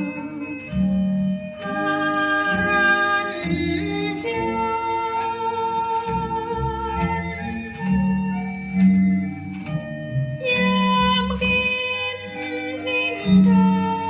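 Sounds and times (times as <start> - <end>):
person singing: 0.0 - 0.8, 10.4 - 14.0
organ-like chords: 0.0 - 14.0.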